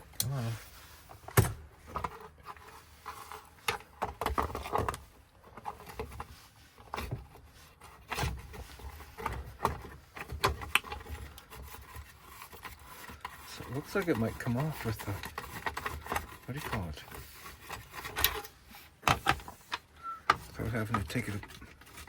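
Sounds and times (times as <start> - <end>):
tool scraping metal: 7.8 - 22.0.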